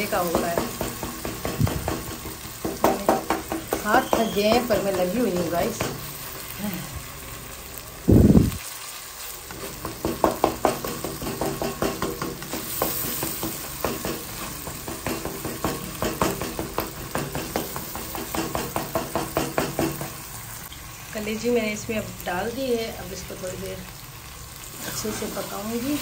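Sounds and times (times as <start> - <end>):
sauce sizzling in oil: 0.0 - 26.0
spatula scraping a pan: 24.7 - 26.0.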